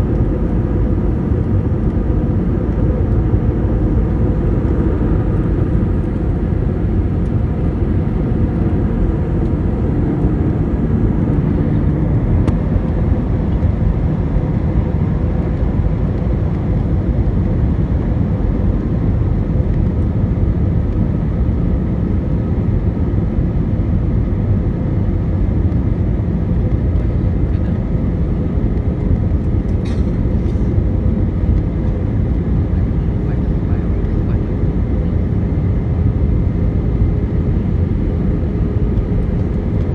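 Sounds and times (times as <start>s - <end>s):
jet airliner cabin noise: 0.0s - 21.6s, 24.1s - 39.9s
faint constant hum: 22.4s - 39.9s.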